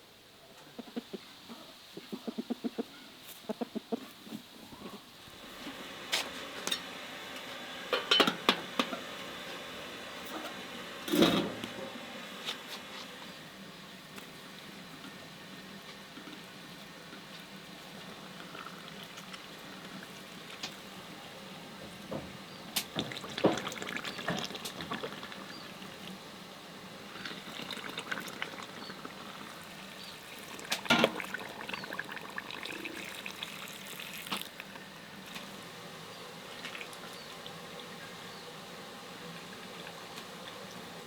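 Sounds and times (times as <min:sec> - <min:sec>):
steady hiss: 0:00.0 - 0:41.0
water splashing and pouring: 0:22.9 - 0:26.1, 0:27.2 - 0:34.7.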